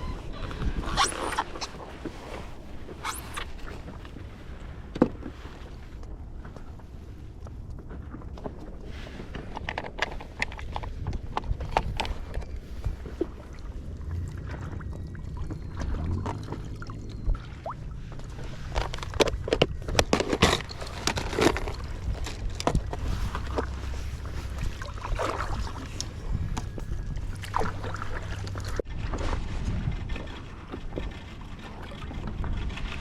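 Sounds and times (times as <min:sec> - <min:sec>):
water sloshing and splashing: 0:00.0 - 0:33.0
wind rumble on microphone: 0:00.0 - 0:33.0
knocks and splashes: 0:12.7 - 0:31.1.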